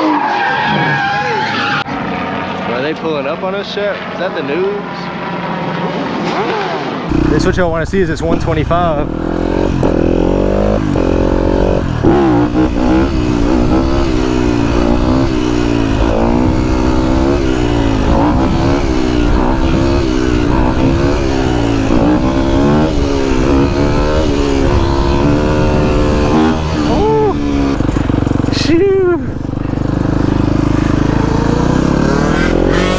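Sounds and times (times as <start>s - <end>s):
dirt bike engine revving: 7.1s - 32.9s.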